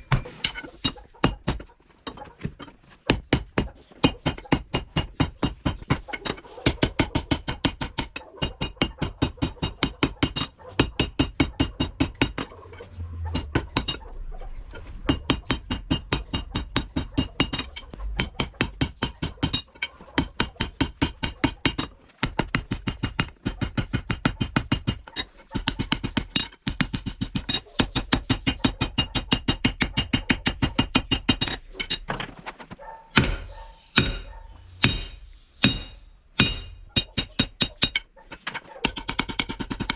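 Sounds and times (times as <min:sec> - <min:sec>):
hammer blows on hot steel: 0:33.2 - 0:36.9.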